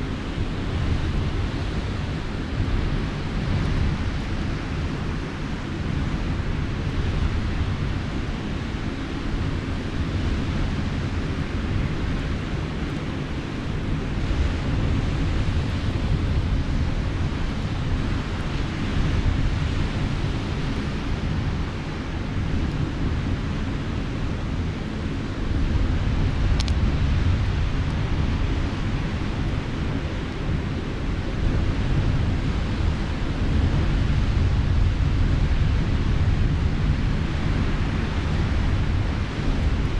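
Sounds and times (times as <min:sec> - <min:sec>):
sea waves washing on shore: 0:00.0 - 0:39.9
wind buffeting microphone: 0:00.0 - 0:39.9
faint click: 0:26.6 - 0:26.8.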